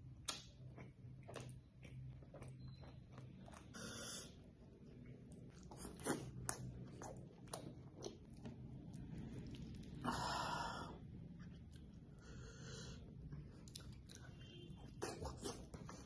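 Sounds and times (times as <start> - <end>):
chewing with wet lip smacks: 0.1 - 10.0, 13.2 - 16.0.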